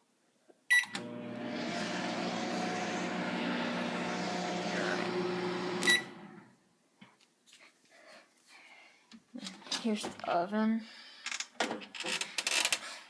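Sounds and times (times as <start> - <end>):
microwave beep: 0.7 - 1.1, 5.8 - 6.4
microwave fan whirring: 0.9 - 6.5
microwave oven humming: 0.9 - 6.5.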